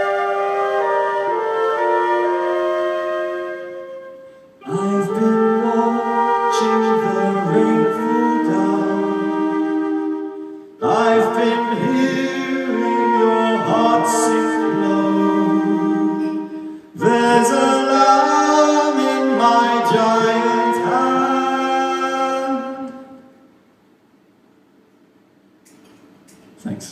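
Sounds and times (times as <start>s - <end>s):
live music with held chords: 0.0s - 23.6s.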